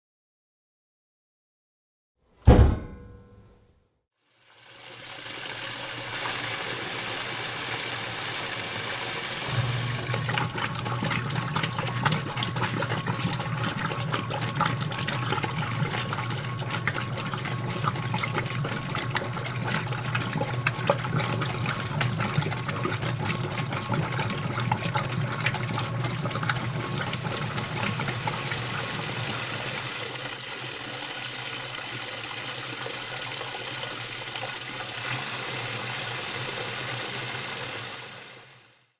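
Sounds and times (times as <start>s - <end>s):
short loud ringing: 2.5s - 3.6s
water rushing into machine: 5.7s - 12.6s, 23.0s - 32.4s.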